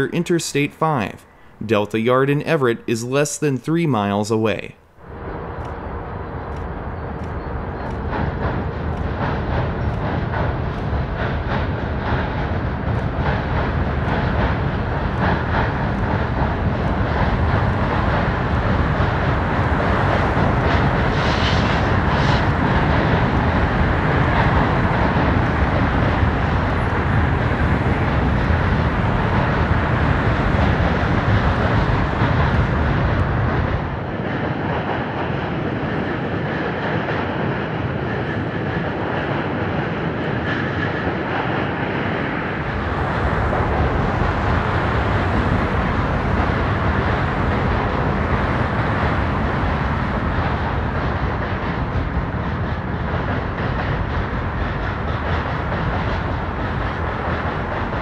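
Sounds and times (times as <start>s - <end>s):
freight train rumbling over bridge: 0.0s - 58.0s.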